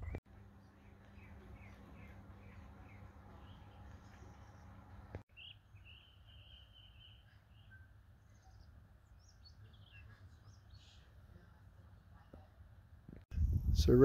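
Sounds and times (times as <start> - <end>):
low background hum: 0.0 - 5.2
faint birdsong: 0.0 - 12.9.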